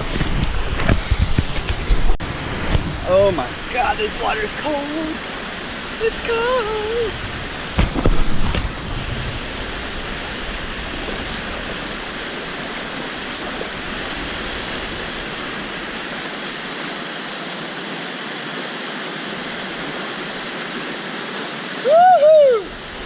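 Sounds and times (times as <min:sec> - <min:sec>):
waterfall rushing into pool: 0:00.0 - 0:23.0
thumps or splashes: 0:07.6 - 0:09.4.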